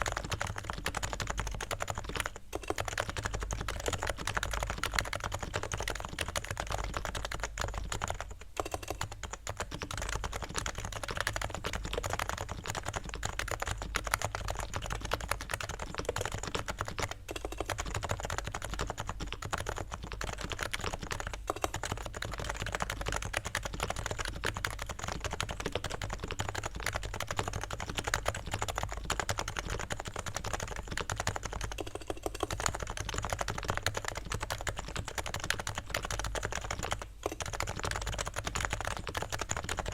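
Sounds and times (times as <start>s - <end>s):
soft keyboard typing: 0.0s - 39.9s.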